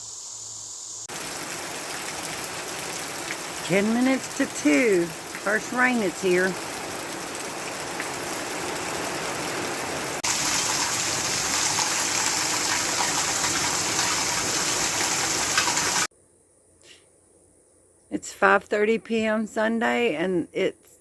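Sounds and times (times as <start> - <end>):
heavy rain falling: 1.1 - 16.1.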